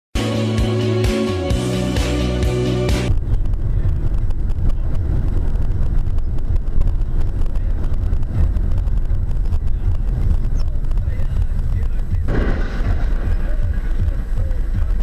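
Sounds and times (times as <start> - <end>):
car road noise rumble: 2.2 - 15.0
wind buffeting microphone: 3.1 - 15.0.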